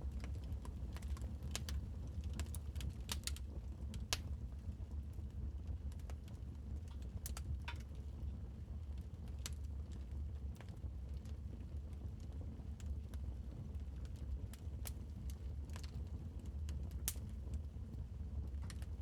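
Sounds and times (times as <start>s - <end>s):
low rumble of burning: 0.0s - 19.0s
wood fire crackling and popping: 0.2s - 4.5s, 14.0s - 17.6s, 18.5s - 18.9s.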